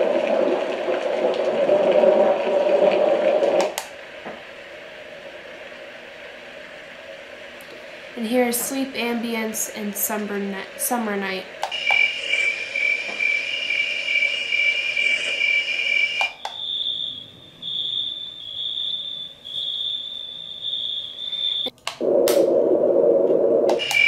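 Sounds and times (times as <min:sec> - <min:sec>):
pulsing insect-like chirp: 0:11.7 - 0:21.7, 0:23.8 - 0:24.0.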